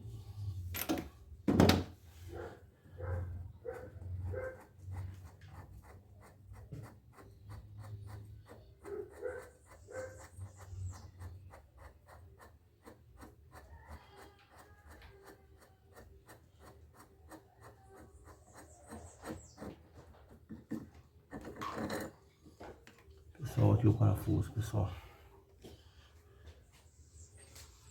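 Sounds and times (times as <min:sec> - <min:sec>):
metal scraping: 0:19.0 - 0:22.5.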